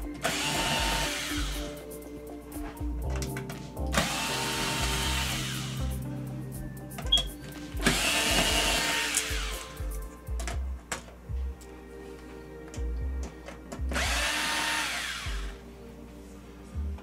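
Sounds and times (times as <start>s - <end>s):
cordless power screwdriver running: 7.9s - 9.7s, 14.0s - 15.6s.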